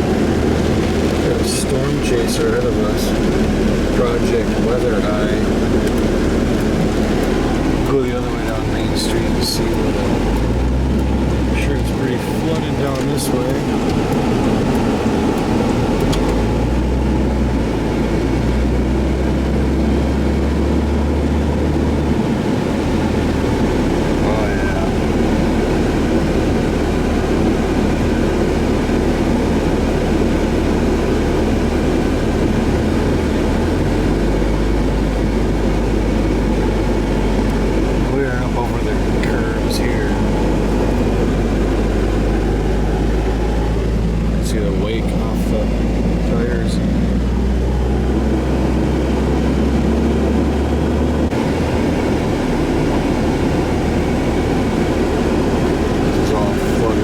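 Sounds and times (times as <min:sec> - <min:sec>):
car engine and road noise: 0:00.0 - 0:57.0
low hum: 0:00.0 - 0:57.0.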